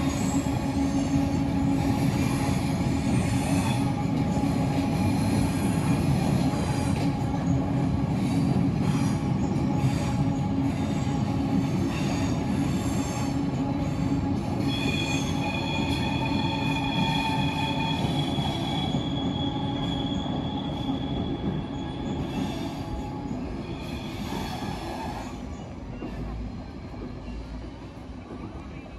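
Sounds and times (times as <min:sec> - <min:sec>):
train wheels rumbling on bridge: 0:00.0 - 0:28.9
high wheel squeal: 0:14.6 - 0:25.5.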